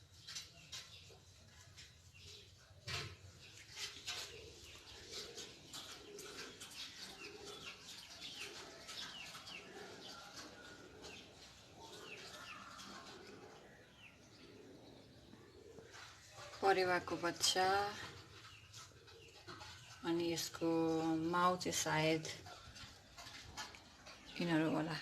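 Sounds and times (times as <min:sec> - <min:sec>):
pigeons cooing: 0:02.2 - 0:25.0.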